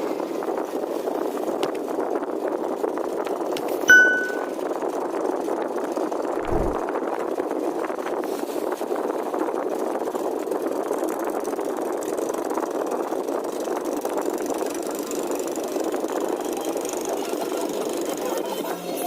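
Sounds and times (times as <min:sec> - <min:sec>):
boat engine running: 0:08.4 - 0:18.6.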